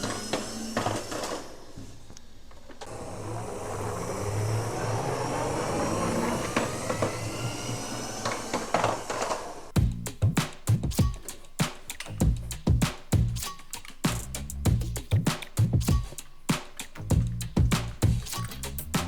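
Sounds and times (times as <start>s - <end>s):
small motor whirring: 2.9s - 9.7s.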